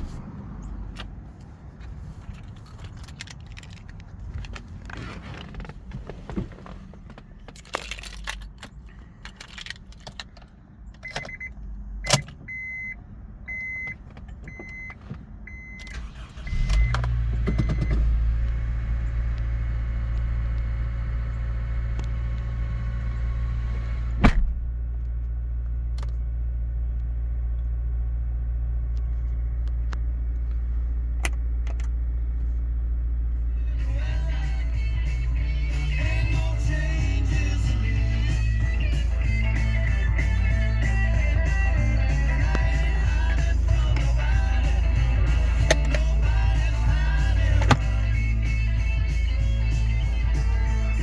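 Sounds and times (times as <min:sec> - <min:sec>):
car engine starting and idling: 0:00.0 - 0:51.0
keys jangling: 0:02.4 - 0:04.5, 0:07.5 - 0:10.4
dashboard warning chime: 0:11.0 - 0:18.8.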